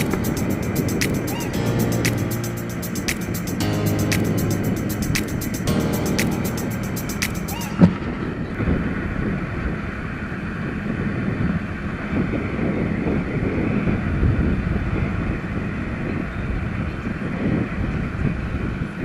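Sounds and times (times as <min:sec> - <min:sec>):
wind buffeting microphone: 0:07.8 - 0:19.0.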